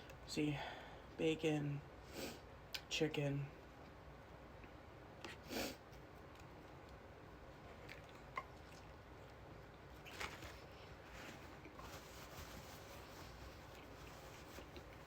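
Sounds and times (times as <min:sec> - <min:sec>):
chewing sandwich: 0:04.6 - 0:11.9, 0:13.4 - 0:15.0.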